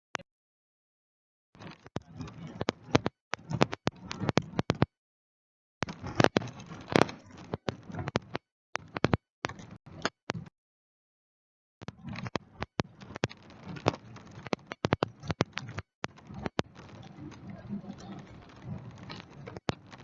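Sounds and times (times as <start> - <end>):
irregular clicks and taps: 1.6 - 4.9, 5.8 - 10.5, 11.8 - 17.1
light crackle: 1.6 - 4.9, 5.8 - 10.5, 11.8 - 20.0.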